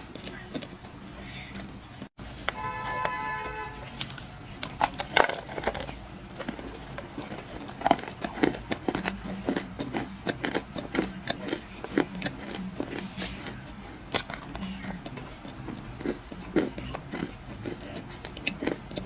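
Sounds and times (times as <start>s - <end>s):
dry clay crunching and crumbling: 3.8s - 19.0s.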